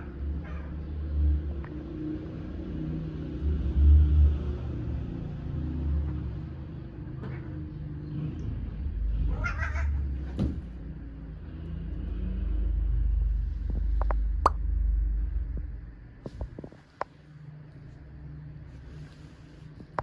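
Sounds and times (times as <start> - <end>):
low steady rumble: 3.2 - 20.0
cat meowing: 9.2 - 10.4.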